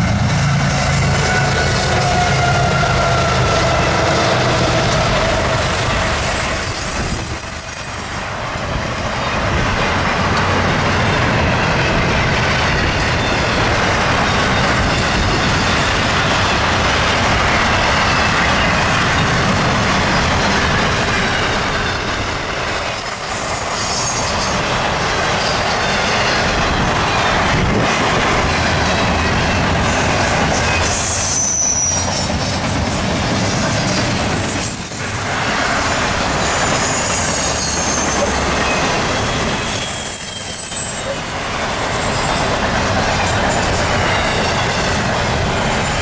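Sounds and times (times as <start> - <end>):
freight train wheels rumbling: 0.0 - 46.0
high wheel squeal: 0.9 - 9.6, 17.7 - 27.8, 29.2 - 46.0.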